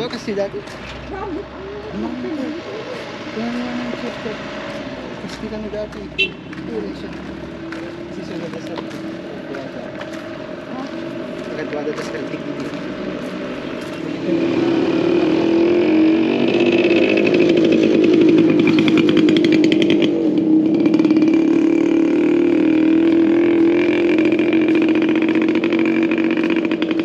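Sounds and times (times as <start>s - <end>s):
small combustion engine running: 11.6s - 27.0s.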